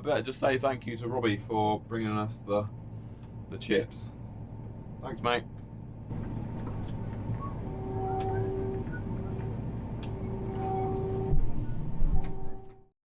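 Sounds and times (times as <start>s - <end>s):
combine harvester drone: 3.8s - 12.8s
steady tone: 6.1s - 12.9s.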